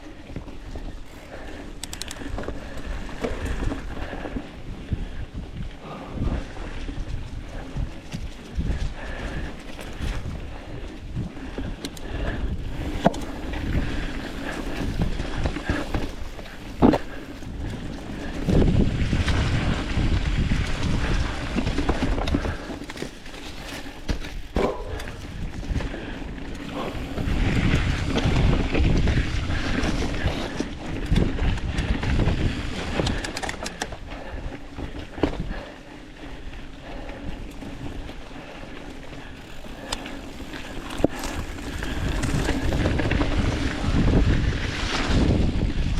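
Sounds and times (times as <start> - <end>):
wind rushing over microphone: 1.1 - 22.9, 24.2 - 35.8, 39.2 - 45.9
bike knocks and rattles: 11.5 - 34.1
tyres rumbling on dirt: 11.6 - 35.8, 36.9 - 45.9.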